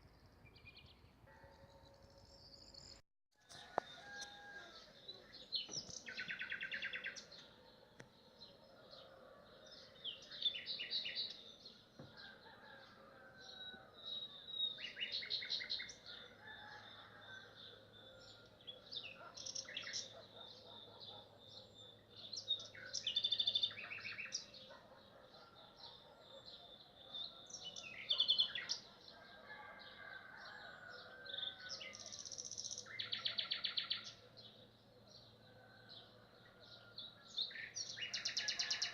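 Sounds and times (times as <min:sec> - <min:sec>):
nightingale singing: 0:18.0 - 0:24.5.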